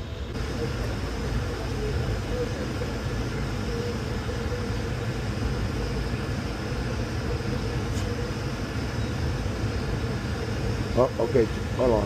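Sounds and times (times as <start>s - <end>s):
faint steady hum: 0.0s - 12.0s
low mechanical drone: 0.0s - 12.0s.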